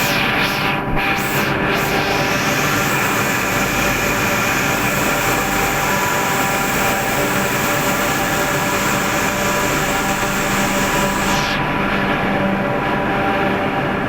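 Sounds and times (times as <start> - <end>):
water pump engine running: 0.0 - 13.6.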